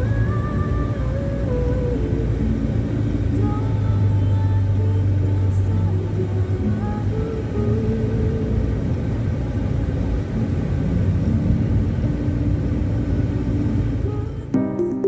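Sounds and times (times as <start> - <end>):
steady low rumble: 0.0 - 14.5
electronic music: 14.5 - 15.0.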